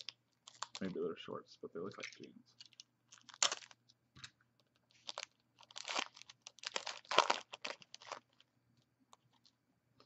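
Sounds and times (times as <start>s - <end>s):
card pack wrapper crinkling: 0.0s - 1.0s, 2.0s - 4.0s, 4.6s - 8.5s.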